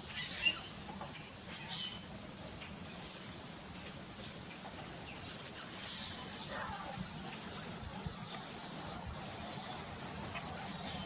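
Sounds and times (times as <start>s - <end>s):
short insect chirps: 0.0s - 6.5s
insects trilling: 0.0s - 11.0s.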